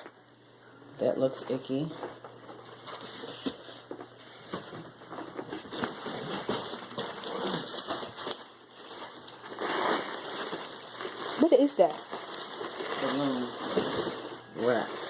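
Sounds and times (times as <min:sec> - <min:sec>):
plastic packing rustling: 0:01.6 - 0:15.0
cardboard box crinkling and tapping: 0:02.0 - 0:09.2.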